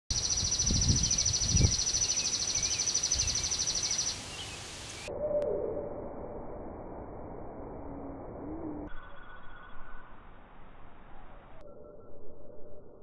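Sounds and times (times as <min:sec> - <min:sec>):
high pulsing bird trill: 0:00.1 - 0:05.1
small bird chirps: 0:00.1 - 0:05.1.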